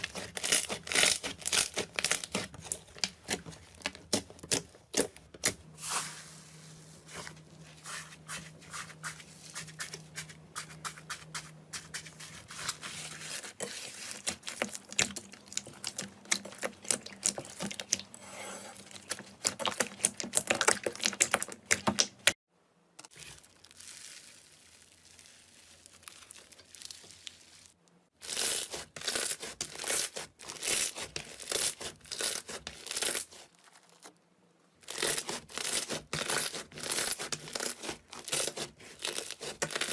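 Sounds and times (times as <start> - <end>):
slime crackling and popping: 0.0 - 5.5, 23.0 - 34.0, 34.9 - 39.9.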